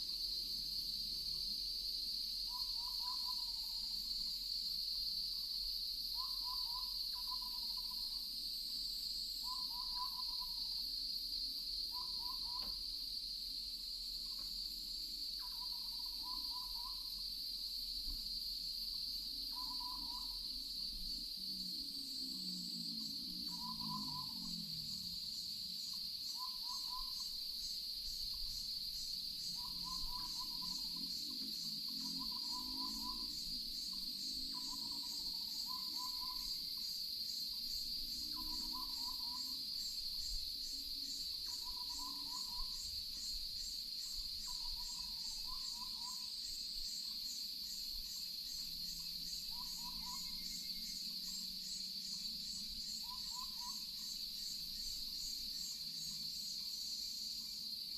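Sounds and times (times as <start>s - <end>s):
pulsing insect trill: 0.0s - 57.9s
crickets ringing: 23.1s - 57.8s.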